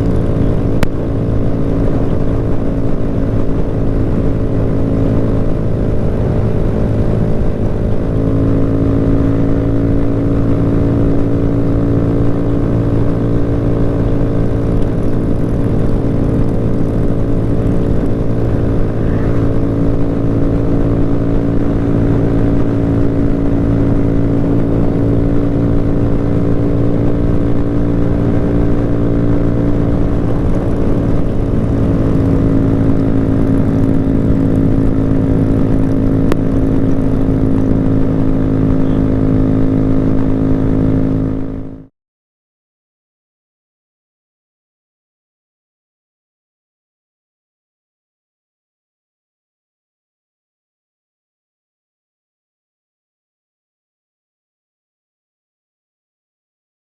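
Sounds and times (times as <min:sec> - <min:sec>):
motorcycle engine running steadily: 0:00.0 - 0:41.9.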